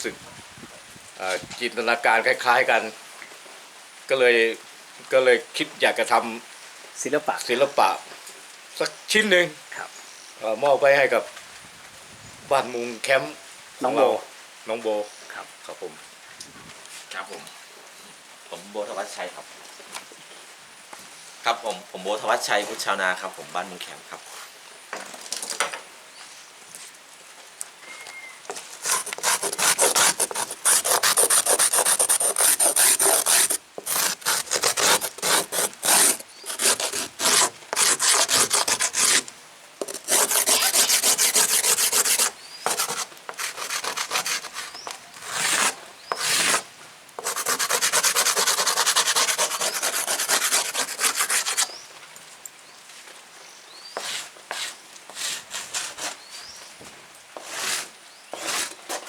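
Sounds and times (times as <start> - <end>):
rapid scraping on hard surface: 28.8 - 46.6, 47.2 - 51.7, 57.4 - 59.0.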